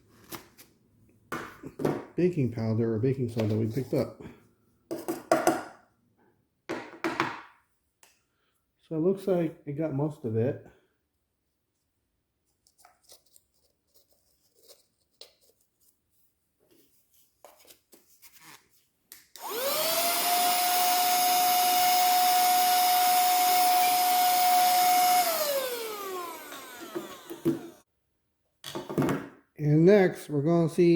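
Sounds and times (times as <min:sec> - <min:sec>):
cordless vacuum cleaner motor whine: 0:19.4 - 0:27.8.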